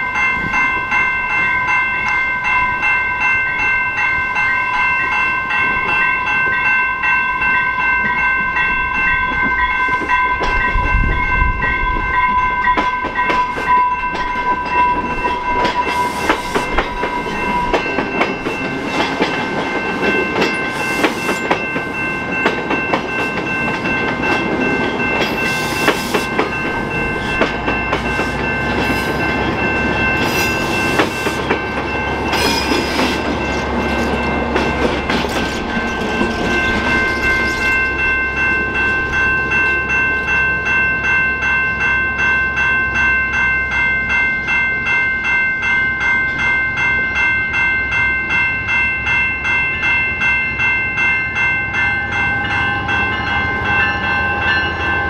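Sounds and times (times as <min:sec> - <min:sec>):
steady high ringing: 0:00.0 - 0:55.0
train wheels clicking over rail joints: 0:11.7 - 0:38.1.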